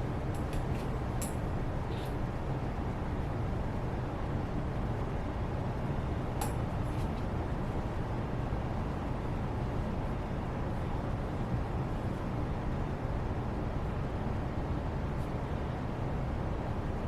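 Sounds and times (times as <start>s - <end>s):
low room ambience rumble: 0.0s - 17.0s.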